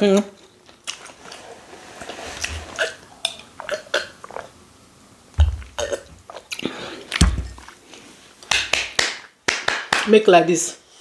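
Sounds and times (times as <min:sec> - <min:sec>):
person burping: 0:05.7 - 0:06.1.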